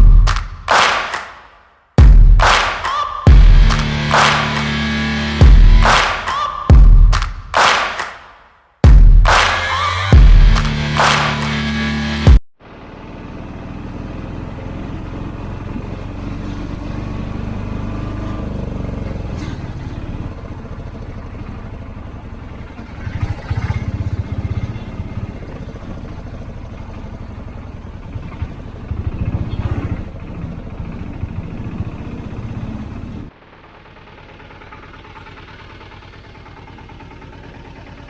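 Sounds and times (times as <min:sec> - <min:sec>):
traffic passing: 0:09.3 - 0:38.0.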